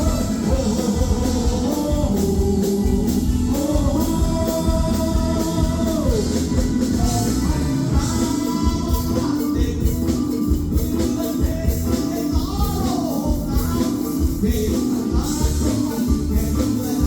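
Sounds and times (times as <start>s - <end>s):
band with steady drum beat: 0.0s - 17.0s.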